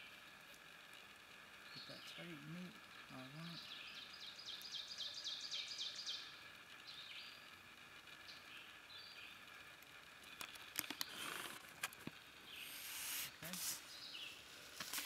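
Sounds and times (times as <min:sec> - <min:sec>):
songbird singing: 0:01.5 - 0:14.7
brief rustle: 0:14.8 - 0:15.0.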